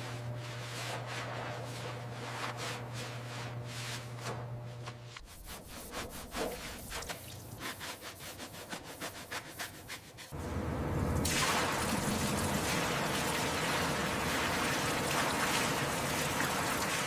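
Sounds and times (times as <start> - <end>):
scrubbing strokes on a surface: 0.0 - 10.6
low steady hum: 10.4 - 17.0.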